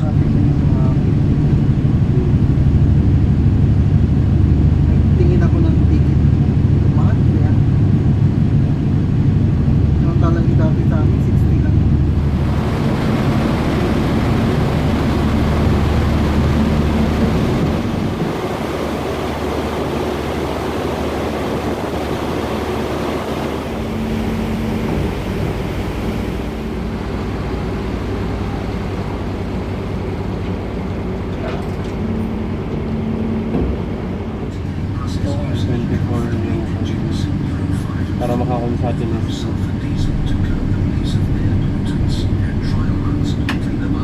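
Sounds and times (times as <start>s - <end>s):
ferry engines droning: 0.0s - 44.0s
rushing water: 10.9s - 44.0s.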